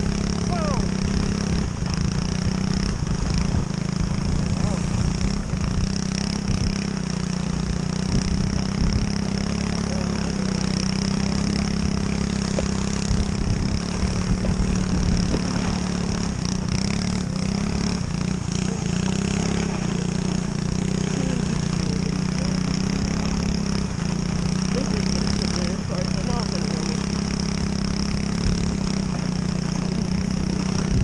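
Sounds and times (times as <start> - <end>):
pit bike engine running: 0.0 - 31.0.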